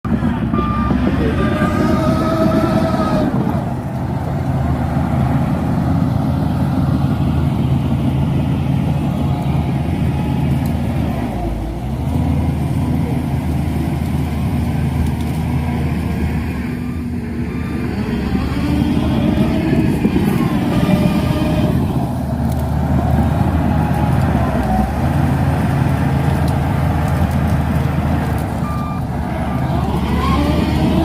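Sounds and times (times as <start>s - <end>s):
bulldozer diesel engine running: 0.0s - 31.0s
faint squeals: 28.6s - 31.0s.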